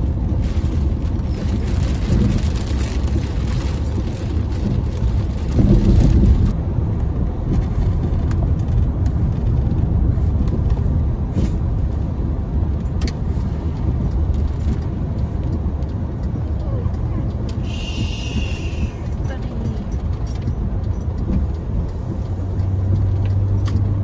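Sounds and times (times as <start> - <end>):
car interior driving rumble: 0.0 - 24.0.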